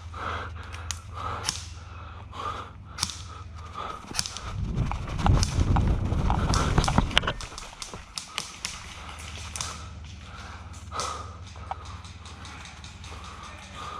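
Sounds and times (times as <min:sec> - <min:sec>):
person breathing: 0:00.0 - 0:04.8, 0:06.2 - 0:13.9
movement through woods: 0:00.0 - 0:13.9
airsoft gunfire snaps: 0:03.0 - 0:03.4
low wind rumble on microphone: 0:03.5 - 0:11.8.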